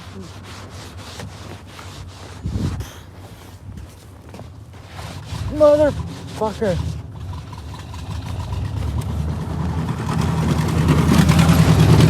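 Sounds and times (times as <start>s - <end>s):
car engine revving: 5.2s - 12.0s.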